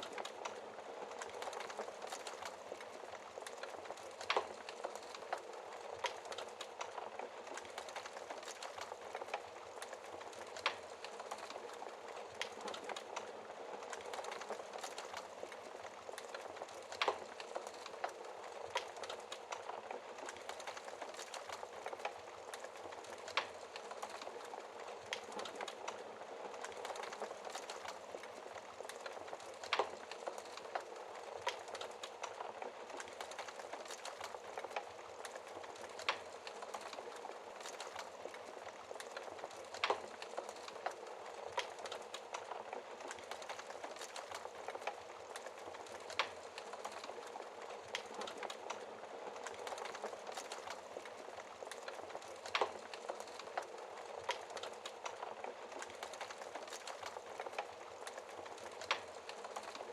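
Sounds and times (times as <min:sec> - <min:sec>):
fire crackling: 0:00.0 - 0:59.9
fire popping: 0:00.0 - 0:59.9
wood fire hissing: 0:00.0 - 0:59.9.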